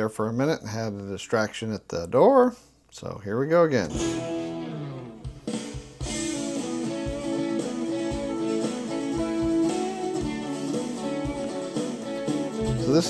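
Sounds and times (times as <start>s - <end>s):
guitars: 3.7s - 13.0s
low steady drum beat: 5.2s - 13.0s.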